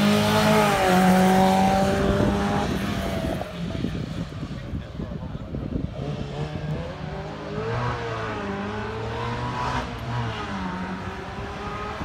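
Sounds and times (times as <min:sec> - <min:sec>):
sports car engine accelerating: 0:00.0 - 0:04.1, 0:05.7 - 0:12.0.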